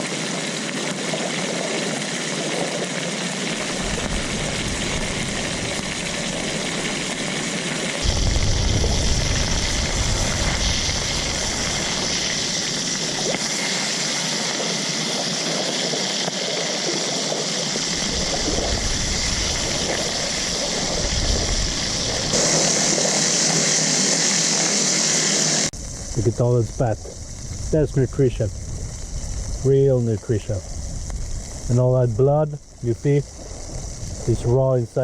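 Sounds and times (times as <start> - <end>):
rushing water noise: 0.0 - 35.0
low rumbles: 3.7 - 7.3, 8.0 - 13.3, 17.9 - 22.4, 25.8 - 34.5.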